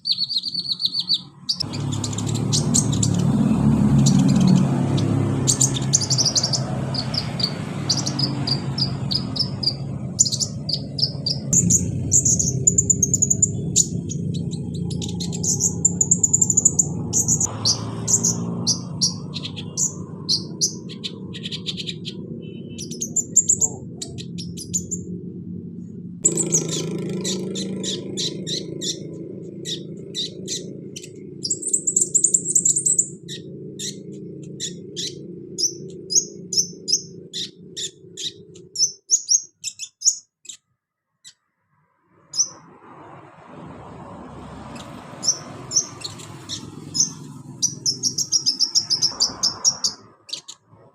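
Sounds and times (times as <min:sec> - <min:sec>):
bird chirping and trilling: 0:00.0 - 0:41.5, 0:42.2 - 0:43.2, 0:43.8 - 0:50.9.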